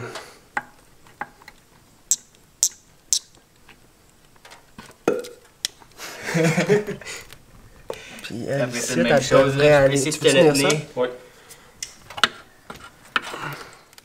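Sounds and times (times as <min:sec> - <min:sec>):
hand tools clicking and knocking: 0:00.2 - 0:06.0, 0:11.8 - 0:14.0.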